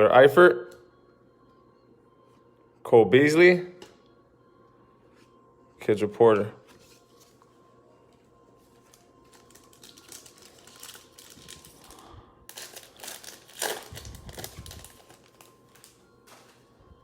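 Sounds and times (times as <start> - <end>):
cards being handled: 6.6 - 7.4
wrapper tearing and crinkling: 8.9 - 16.0.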